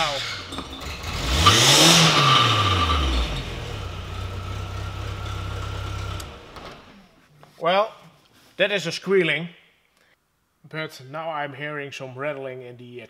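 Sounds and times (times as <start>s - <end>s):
high squealing tone: 0.0s - 6.2s
car engine revving: 0.0s - 6.9s.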